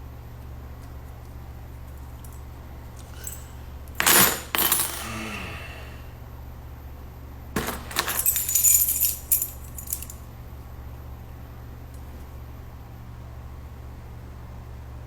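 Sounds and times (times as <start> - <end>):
clinking and clattering: 3.0 - 5.2, 7.6 - 10.2.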